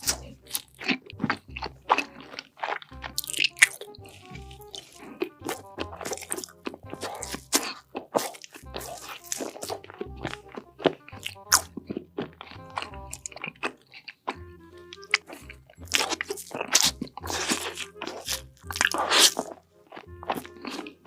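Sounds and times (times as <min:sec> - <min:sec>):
crunchy food chewing: 0:00.0 - 0:21.0
music with bass beat: 0:02.9 - 0:07.5, 0:08.6 - 0:13.4, 0:14.4 - 0:19.1.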